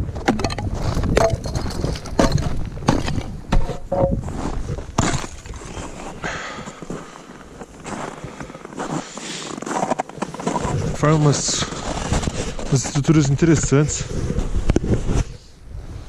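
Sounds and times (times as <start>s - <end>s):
footsteps crunching on snow: 2.9s - 13.6s.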